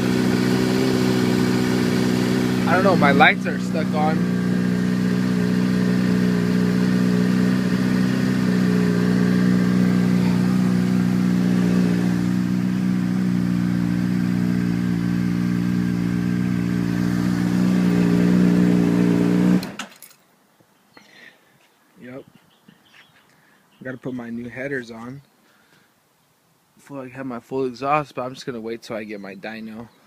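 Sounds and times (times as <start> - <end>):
motorcycle engine idling: 0.0 - 19.6.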